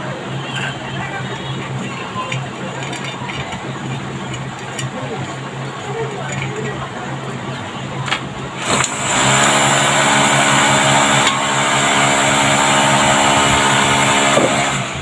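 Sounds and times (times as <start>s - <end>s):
high-speed electric motor whining: 7.8s - 15.0s.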